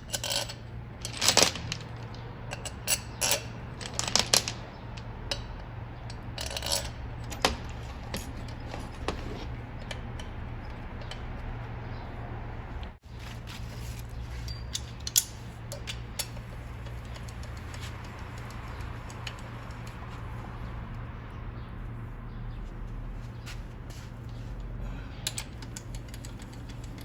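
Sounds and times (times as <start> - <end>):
tools clinking on engine metal: 0.1 - 12.0, 13.8 - 20.0, 25.0 - 27.0.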